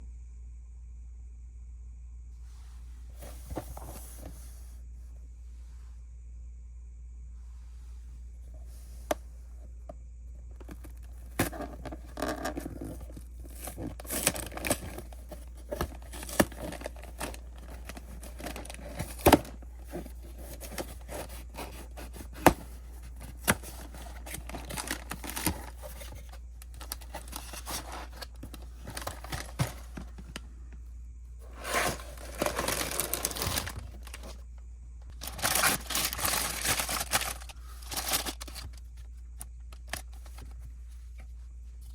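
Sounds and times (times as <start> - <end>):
plastic and cardboard crinkling: 10.5 - 30.5, 31.4 - 41.9
packaging rustling: 10.6 - 30.4, 31.4 - 34.4, 35.1 - 39.1.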